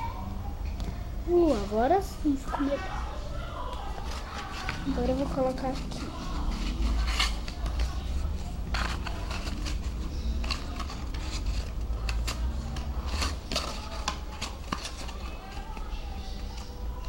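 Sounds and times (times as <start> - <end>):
cardboard rustling and scraping: 3.9 - 15.9.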